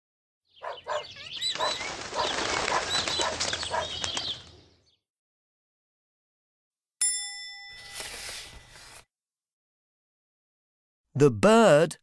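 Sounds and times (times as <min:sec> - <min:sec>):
small bird chirping: 0:00.5 - 0:05.0
wings flapping: 0:01.2 - 0:04.6.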